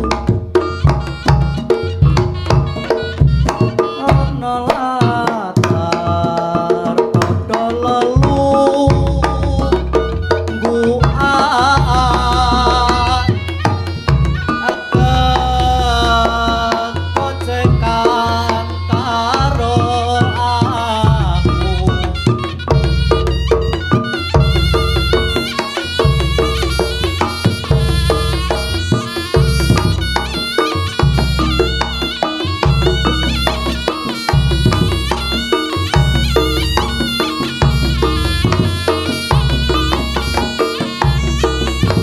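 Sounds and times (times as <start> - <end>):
heavy bass: 0.0 - 6.4, 7.2 - 42.0
hand drums rhythm: 0.0 - 42.0
wavering melodic lead: 9.2 - 42.0.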